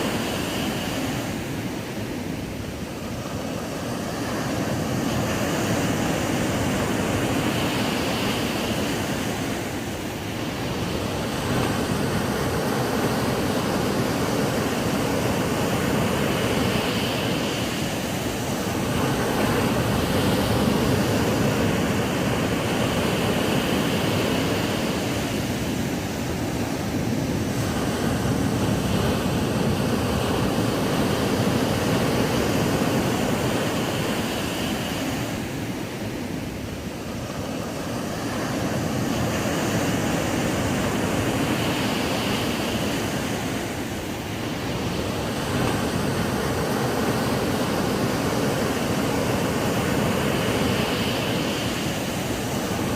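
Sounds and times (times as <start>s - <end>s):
ocean waves breaking on beach: 0.0s - 52.9s.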